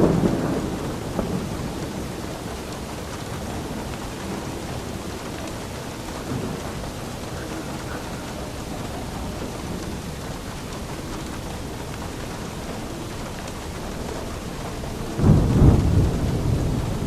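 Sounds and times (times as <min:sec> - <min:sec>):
steady rain falling: 0:00.0 - 0:17.0
thunder rumble: 0:00.0 - 0:17.0.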